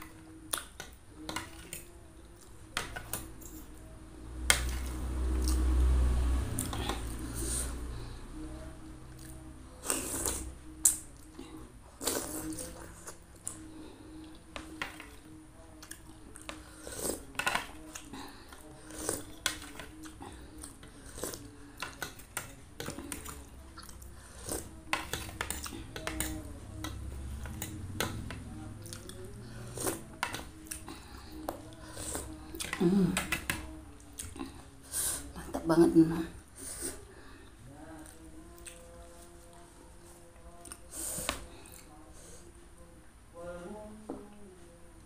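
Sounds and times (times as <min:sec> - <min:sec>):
close-up chewing: 0:37.9 - 0:42.0.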